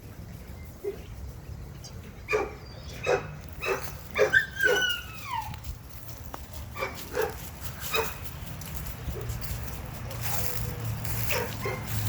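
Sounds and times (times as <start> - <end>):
dog barking: 2.3 - 5.0, 6.8 - 8.2, 11.2 - 12.0
dog whining: 3.7 - 5.6.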